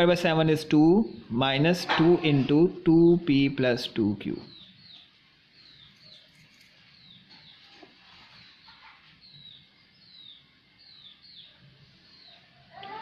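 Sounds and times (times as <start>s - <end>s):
bird chirping: 3.2s - 13.0s.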